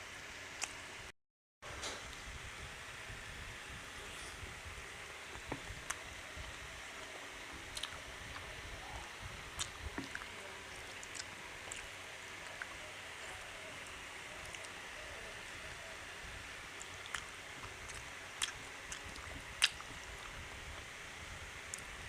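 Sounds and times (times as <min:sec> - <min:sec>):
soft chewing: 0:05.3 - 0:16.0, 0:16.7 - 0:20.9.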